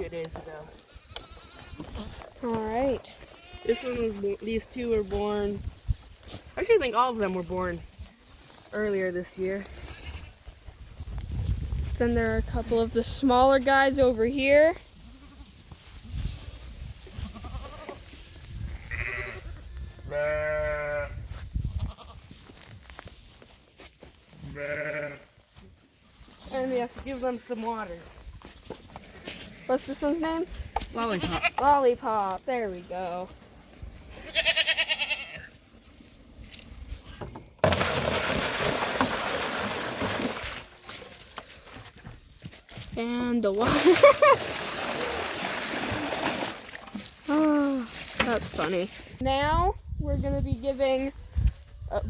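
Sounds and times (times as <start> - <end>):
young livestock bleating: 0.7 - 2.2, 3.0 - 4.2, 9.6 - 10.5, 15.0 - 15.6, 17.1 - 18.0, 18.7 - 22.3, 24.4 - 25.4, 30.9 - 31.7, 34.2 - 35.5
water pouring into trough: 37.6 - 40.8, 43.6 - 47.0.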